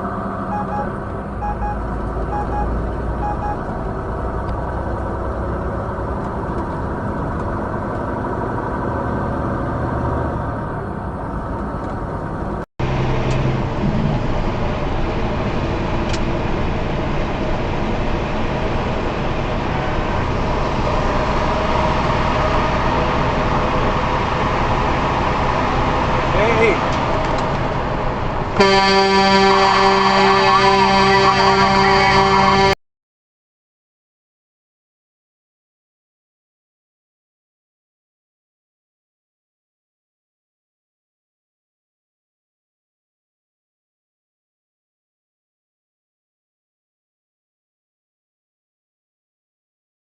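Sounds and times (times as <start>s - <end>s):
vehicle engine and road noise: 0.0s - 32.8s.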